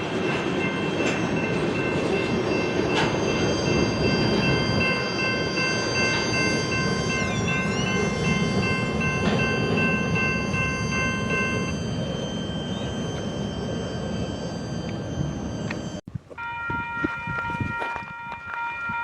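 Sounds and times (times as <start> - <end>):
train wheels rumbling on rail: 0.0 - 13.5
high ringing tones: 0.0 - 19.0.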